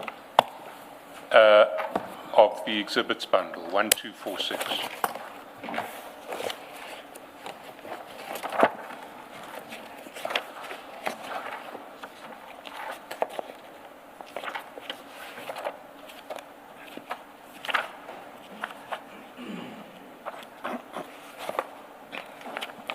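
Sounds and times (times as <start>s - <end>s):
paper pages being turned: 4.2s - 19.0s, 20.2s - 22.9s.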